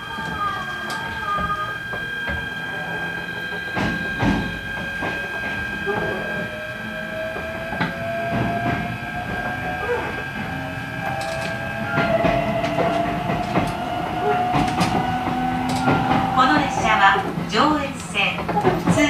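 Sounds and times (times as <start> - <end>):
electric train motors whining: 0.0 - 19.0
wheel clicks on rails: 7.3 - 19.0.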